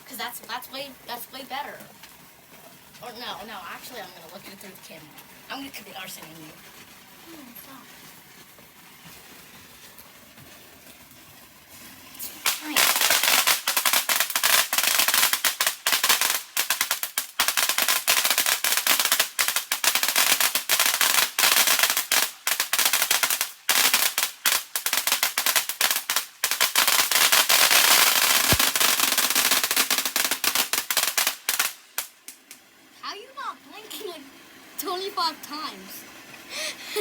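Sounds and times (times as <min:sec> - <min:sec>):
firecrackers banging and crackling: 0:12.4 - 0:32.6.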